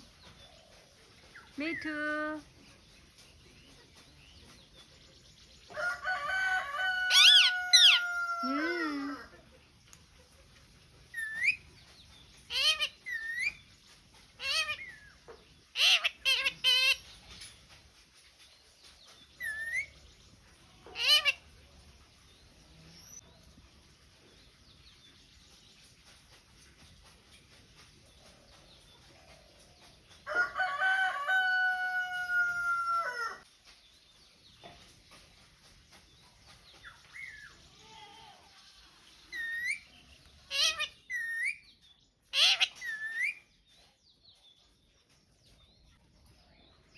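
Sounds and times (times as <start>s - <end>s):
rooster crowing: 5.8s - 8.7s, 30.3s - 33.4s
parrot squawking: 7.1s - 8.2s, 12.5s - 13.4s, 15.8s - 17.0s, 40.5s - 41.5s, 42.4s - 43.3s.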